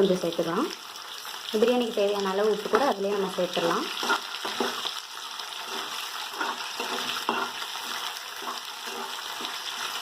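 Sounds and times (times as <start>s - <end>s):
onions sizzling in hot fat: 0.0s - 10.0s
spatula scraping and clinking: 3.2s - 10.0s.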